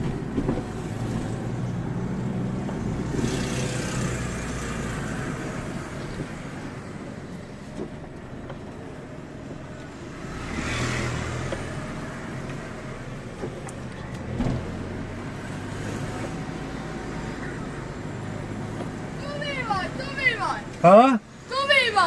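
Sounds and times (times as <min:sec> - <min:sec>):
road traffic rumble: 0:00.0 - 0:22.0
vehicle passing by: 0:00.8 - 0:07.0, 0:10.1 - 0:21.1.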